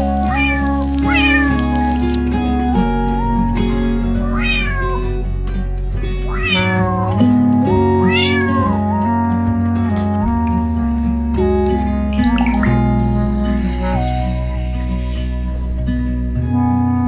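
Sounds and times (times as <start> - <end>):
cat meowing: 0.3 - 1.7, 4.2 - 5.1, 6.3 - 7.2, 8.0 - 8.8
music of held notes: 12.2 - 15.5.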